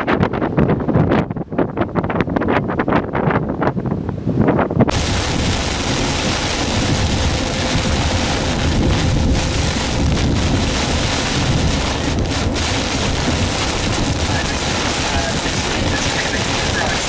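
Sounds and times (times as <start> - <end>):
heavy rain on car roof: 4.9 - 17.0.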